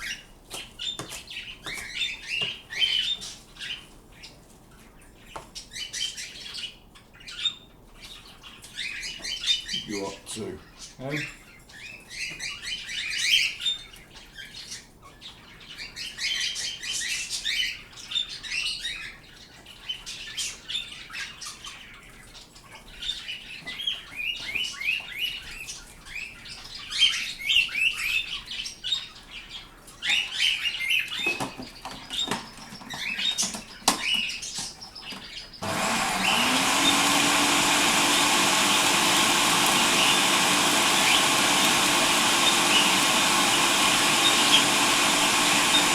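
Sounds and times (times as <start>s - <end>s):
pet birds chirping: 0.0s - 45.9s
electric kitchen chopper motor: 35.6s - 45.9s.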